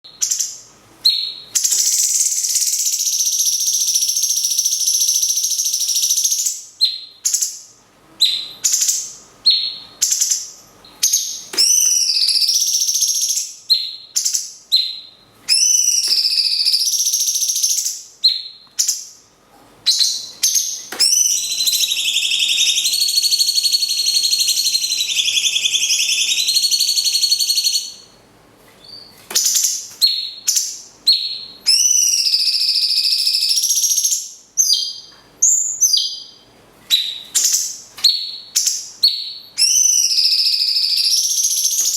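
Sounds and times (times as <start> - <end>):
birds trilling: 20.0 - 27.8.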